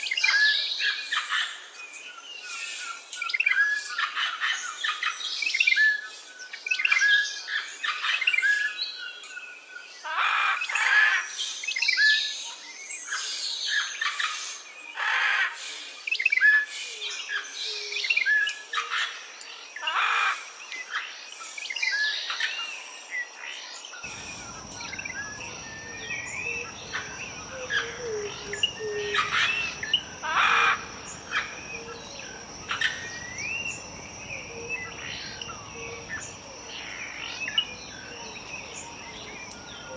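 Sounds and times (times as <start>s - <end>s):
birds chirping and calling: 23.5s - 39.9s
low hiss: 24.0s - 39.9s
steady high whine: 24.1s - 28.8s.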